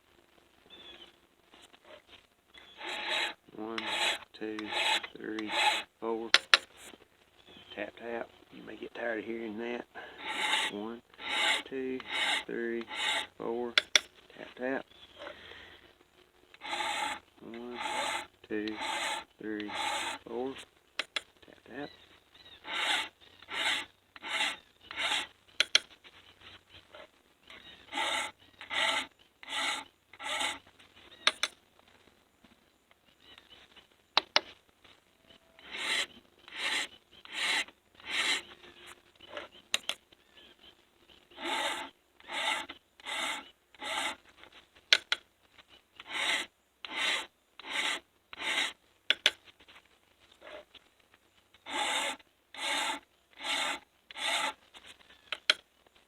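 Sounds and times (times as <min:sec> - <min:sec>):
hand file rasping on chain: 0:02.8 - 0:05.9, 0:10.0 - 0:13.9, 0:16.6 - 0:20.3, 0:22.6 - 0:25.8, 0:27.9 - 0:30.6, 0:35.6 - 0:38.5, 0:41.3 - 0:44.2, 0:46.0 - 0:49.3, 0:51.6 - 0:54.6.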